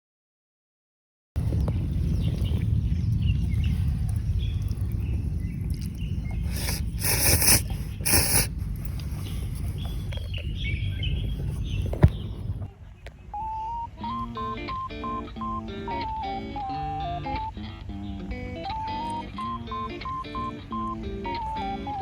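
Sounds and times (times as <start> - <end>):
wind rumbling on microphone: 1.4 - 13.3
small birds chirping: 1.4 - 15.7, 16.3 - 22.0
scratchy noises: 6.4 - 10.4.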